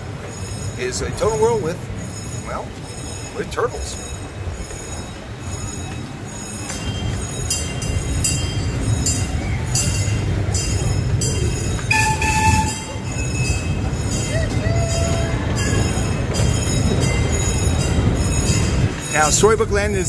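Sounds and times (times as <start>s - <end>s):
small train rumbling on track: 0.0s - 20.0s
train horn toot: 11.9s - 13.1s.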